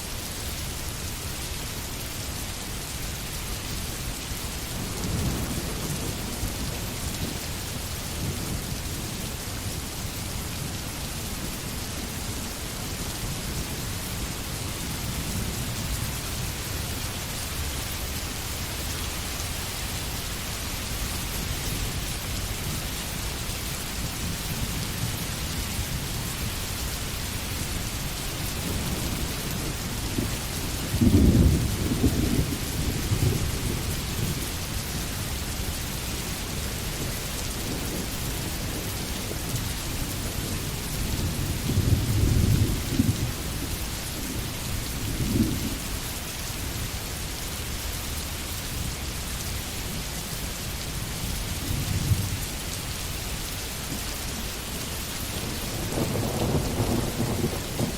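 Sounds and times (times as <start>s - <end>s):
steady rain: 0.0s - 57.9s
thunder rumbling: 28.0s - 34.4s, 55.4s - 57.9s.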